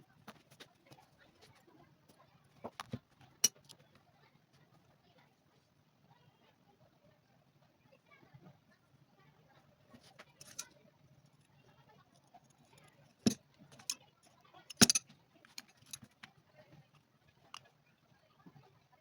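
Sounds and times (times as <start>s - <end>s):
sharp clicks and knocks: 14.7s - 16.1s.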